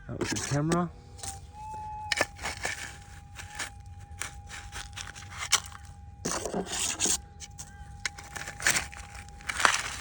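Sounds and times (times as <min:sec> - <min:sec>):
pick scraping gravelly soil: 0:00.0 - 0:01.4, 0:02.1 - 0:10.0
small stones crackling: 0:02.1 - 0:10.0.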